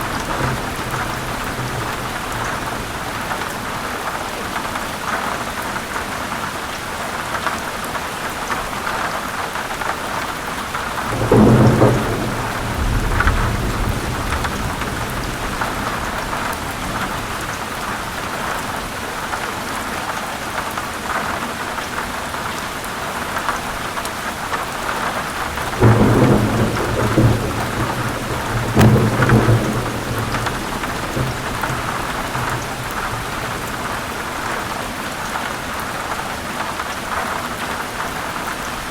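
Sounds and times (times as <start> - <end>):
thunder rumbling: 0.0 - 4.0, 10.6 - 18.9, 25.0 - 35.5
heavy rain: 0.0 - 38.9.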